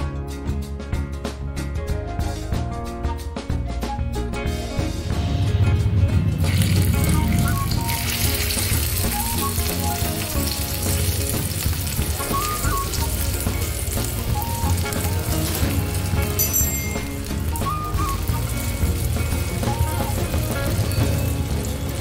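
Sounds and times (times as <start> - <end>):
background music: 0.0 - 22.0
okra sizzling in hot oil: 6.4 - 16.4, 17.0 - 22.0.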